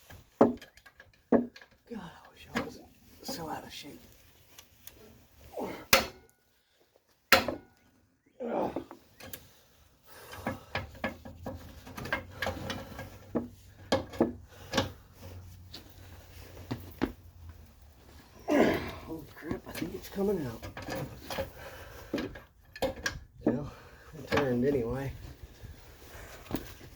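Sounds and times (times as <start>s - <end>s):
hand tools knocking and scraping metal: 0.0s - 2.8s, 7.3s - 7.8s, 10.3s - 15.0s, 19.2s - 24.9s.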